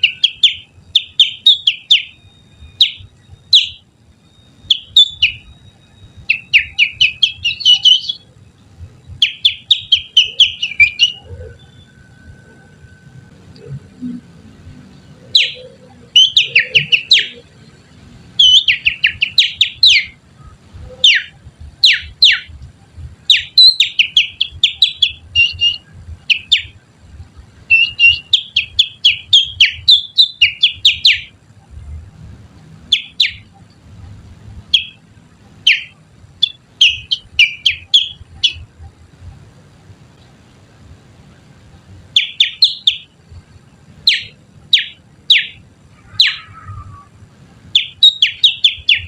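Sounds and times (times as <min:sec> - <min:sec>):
finger whistling birdsong: 0:00.0 - 0:08.3, 0:09.1 - 0:14.2, 0:15.2 - 0:17.6, 0:18.4 - 0:22.5, 0:23.3 - 0:26.8, 0:27.7 - 0:31.3, 0:35.7 - 0:38.6, 0:44.1 - 0:47.1, 0:47.8 - 0:49.0.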